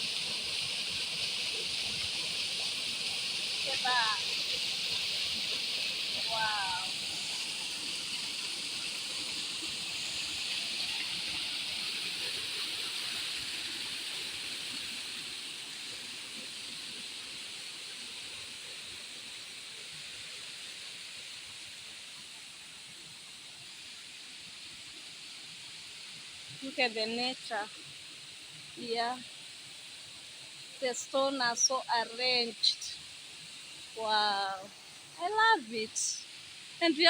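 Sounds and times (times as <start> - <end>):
waterfall rushing: 3.2 - 7.9.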